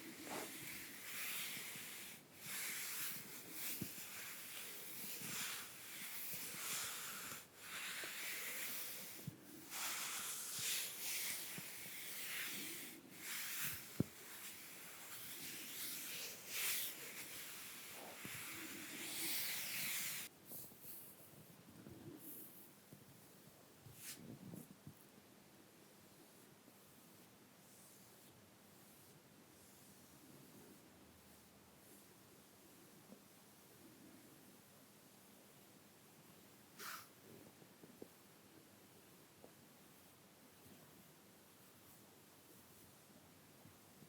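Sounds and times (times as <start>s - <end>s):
brush strokes on skin: 0.0s - 24.7s, 26.0s - 34.7s, 36.8s - 37.2s.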